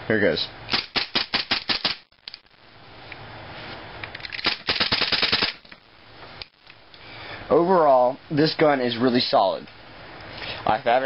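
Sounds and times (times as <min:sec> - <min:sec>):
airsoft pistol rapid shots: 0:00.7 - 0:02.1, 0:04.4 - 0:05.6.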